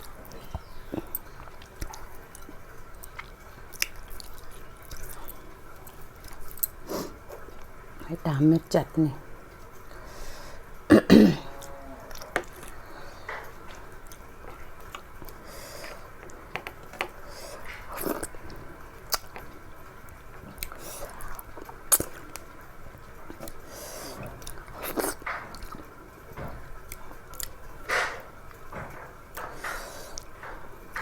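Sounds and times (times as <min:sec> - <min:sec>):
wet chewing and lip-smacking: 0:00.0 - 0:06.8, 0:12.1 - 0:25.9
cough-like throat sound: 0:10.9 - 0:11.7.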